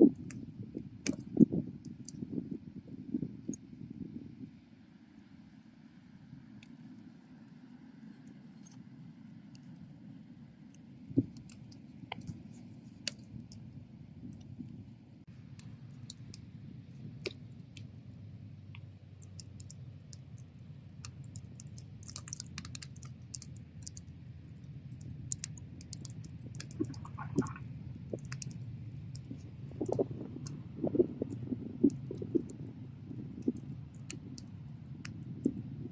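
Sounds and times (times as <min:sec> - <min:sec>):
wood crackling and popping: 0:11.1 - 0:35.9.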